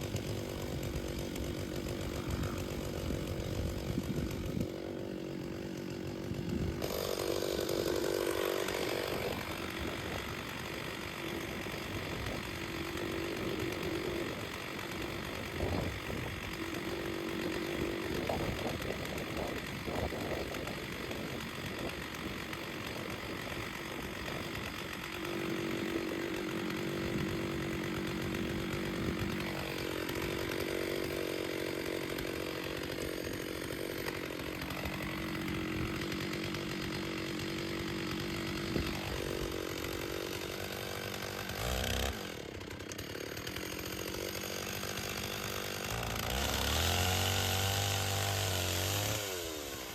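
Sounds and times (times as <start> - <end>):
chainsaw cutting logs: 0.0 - 49.9.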